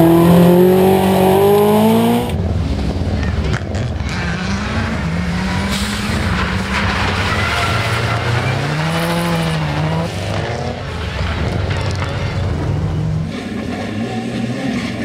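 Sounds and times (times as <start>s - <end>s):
rally car engine revving past: 0.0s - 2.4s.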